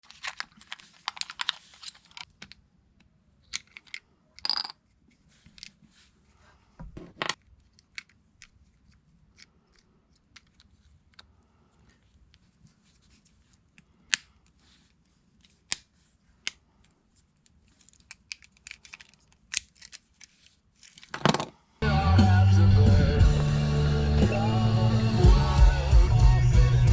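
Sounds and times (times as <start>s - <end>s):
scraping and rustling of handling: 0.0s - 2.6s, 4.8s - 21.6s.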